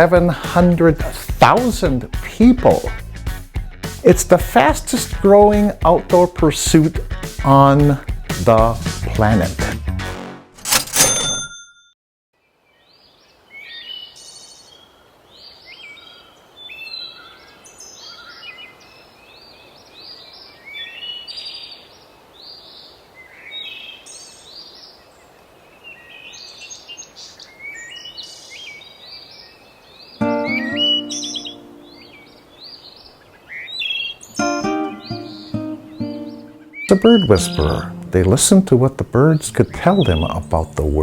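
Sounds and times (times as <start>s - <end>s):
faint outdoor hiss: 0.0s - 2.9s, 3.9s - 9.5s, 12.4s - 41.0s
birds chirping and singing: 15.4s - 21.9s, 25.9s - 41.0s.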